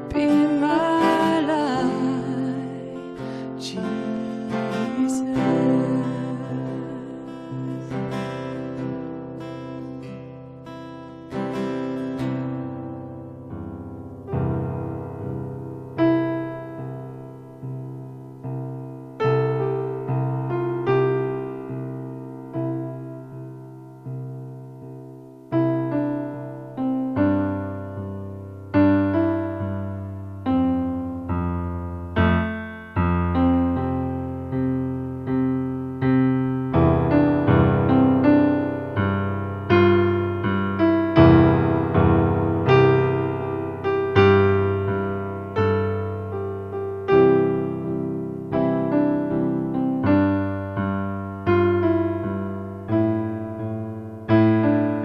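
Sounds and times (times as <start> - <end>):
slow gentle piano piece: 0.0 - 55.0.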